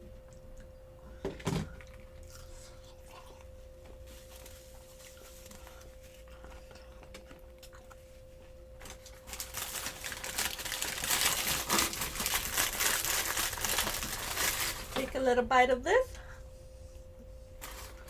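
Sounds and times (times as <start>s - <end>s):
faint steady hum: 0.0s - 18.0s
food crinkling and crackling: 1.7s - 15.2s.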